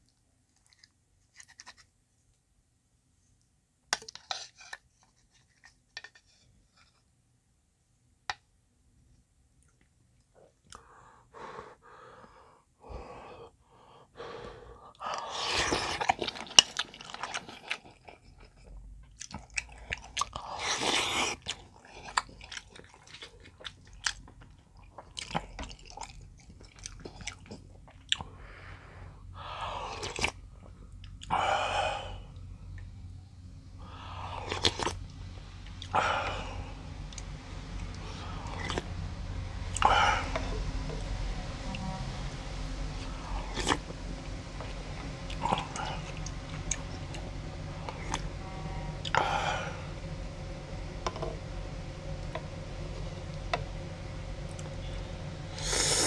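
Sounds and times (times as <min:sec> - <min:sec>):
chewing dumplings: 0:15.0 - 0:28.6, 0:34.4 - 0:35.1.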